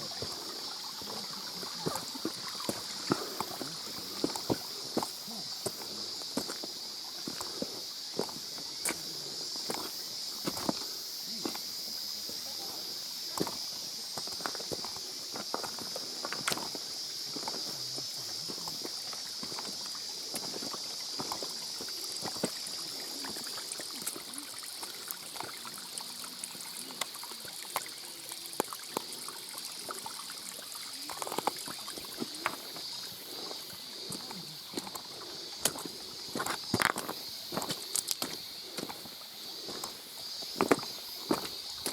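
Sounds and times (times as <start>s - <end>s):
stream water running: 0.0s - 41.9s
footsteps on rocks: 1.8s - 11.7s, 13.4s - 23.4s, 31.1s - 41.9s.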